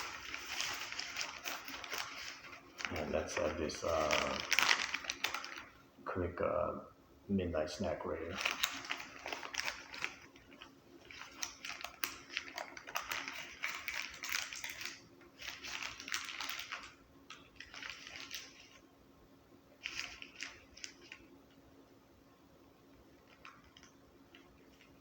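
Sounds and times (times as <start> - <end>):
paper packaging rustling: 0.0 - 5.8, 8.2 - 18.8, 19.8 - 21.3, 23.2 - 25.0.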